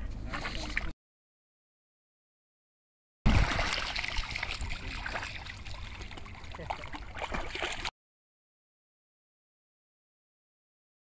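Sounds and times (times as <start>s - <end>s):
running water splashing: 3.3s - 7.9s.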